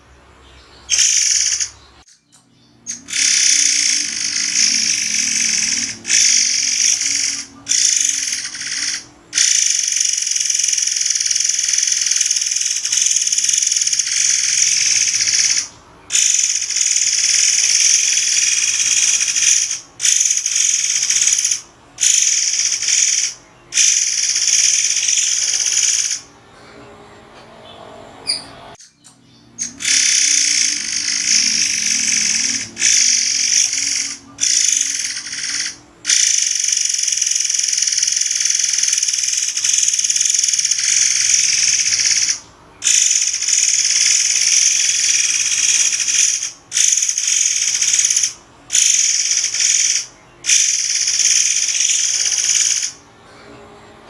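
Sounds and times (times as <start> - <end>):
songbird singing high-pitched song: 0.4 - 26.2, 27.6 - 35.5.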